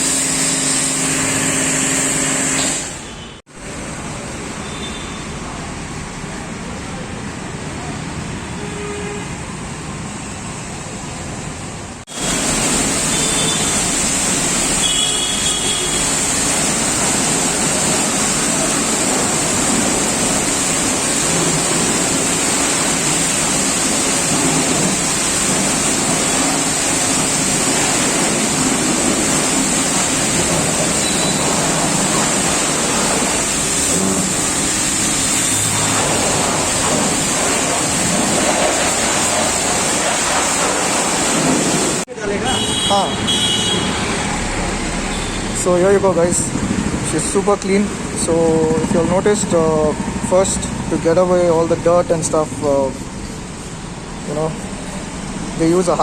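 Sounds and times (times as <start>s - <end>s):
pressure washer jet spraying: 0.0s - 3.3s, 12.1s - 49.5s.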